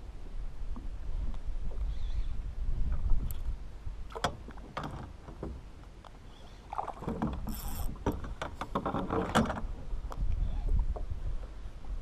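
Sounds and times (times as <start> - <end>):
fishing reel knocks and clicks: 7.5 - 8.0.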